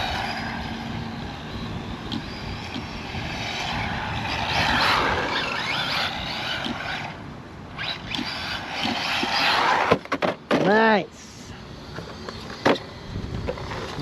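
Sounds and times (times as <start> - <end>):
electric toy car motor whining: 0.0 - 10.2.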